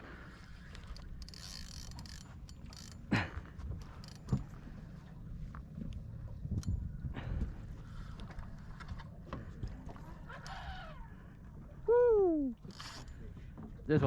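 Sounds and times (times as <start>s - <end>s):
fishing reel ratcheting clicks: 0.7s - 3.0s, 3.8s - 4.4s, 10.3s - 10.8s, 12.7s - 13.1s.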